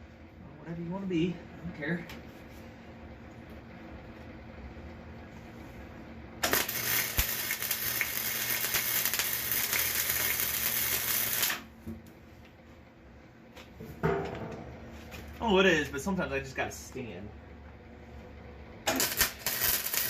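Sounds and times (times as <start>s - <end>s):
welding arc crackle: 6.4s - 11.7s, 18.8s - 20.0s.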